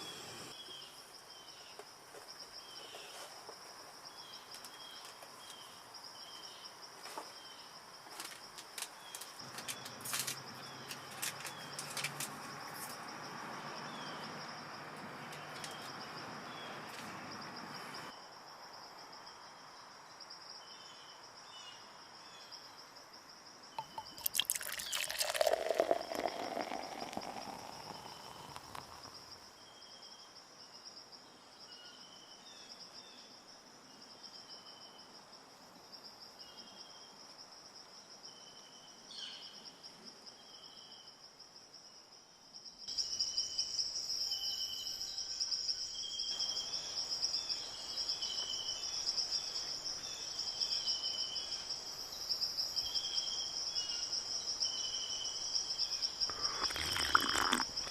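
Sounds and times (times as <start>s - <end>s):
insects buzzing: 0.0s - 1.4s, 23.8s - 29.8s, 42.9s - 57.9s
short insect chirps: 23.7s - 30.2s, 42.9s - 57.9s.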